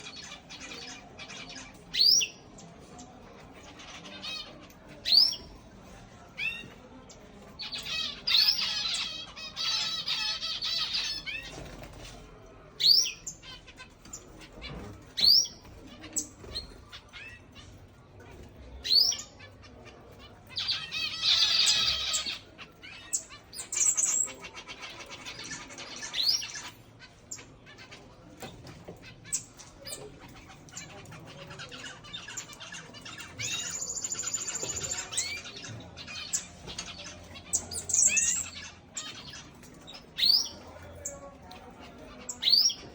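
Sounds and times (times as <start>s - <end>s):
finches chirping: 12.8s - 17.5s, 20.5s - 27.5s, 29.2s - 42.9s.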